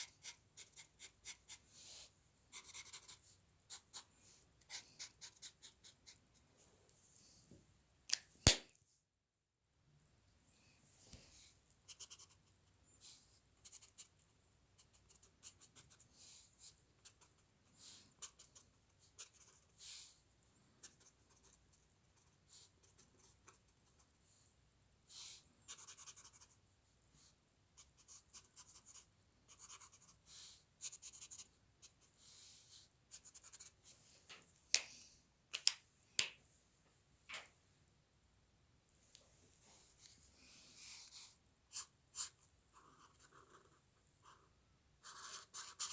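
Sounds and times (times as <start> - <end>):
drawing tool scratching paper: 0.0 - 1.8.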